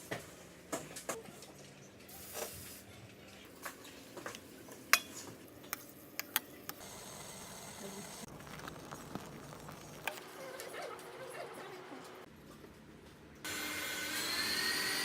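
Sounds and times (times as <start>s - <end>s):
utensils clinking and knocking: 3.6s - 6.8s.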